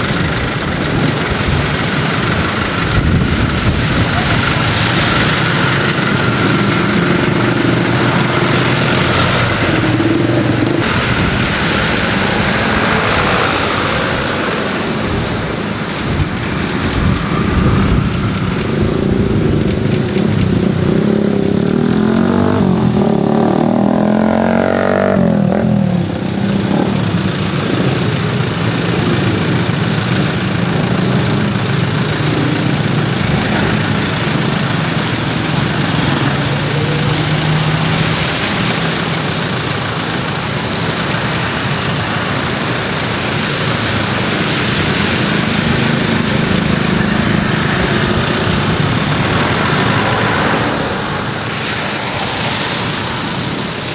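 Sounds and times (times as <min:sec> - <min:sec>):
jet engines running: 0:00.0 - 0:23.5, 0:25.2 - 0:53.9
plane passing whoosh: 0:05.3 - 0:20.0, 0:45.1 - 0:53.9.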